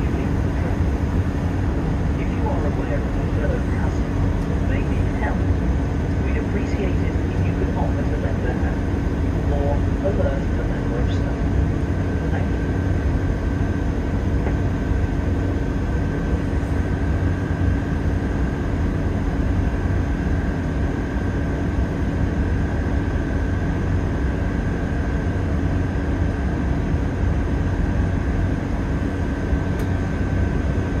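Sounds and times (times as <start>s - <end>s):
train engine and wheels rumbling: 0.0s - 23.0s
steady hum: 0.0s - 31.0s.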